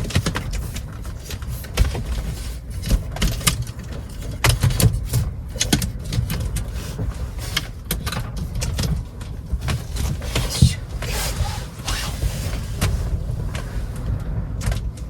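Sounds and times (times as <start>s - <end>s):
strong wind buffeting: 5.0s - 15.0s.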